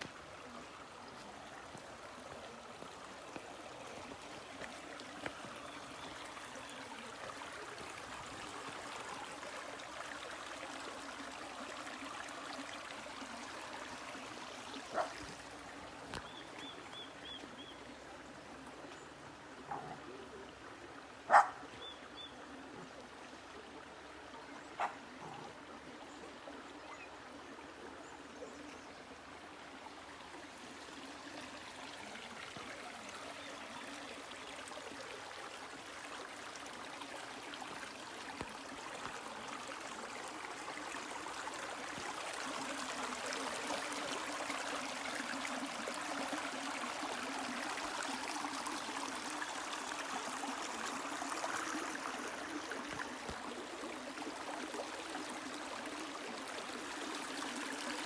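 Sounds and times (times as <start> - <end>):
stream water running: 0.0 - 58.0.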